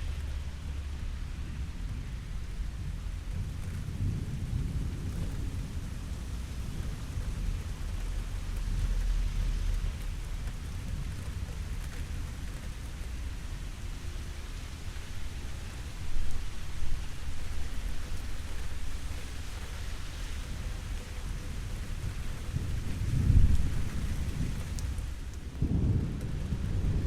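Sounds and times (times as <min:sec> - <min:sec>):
steady rain: 0:00.0 - 0:27.0
rolling thunder: 0:21.9 - 0:27.0.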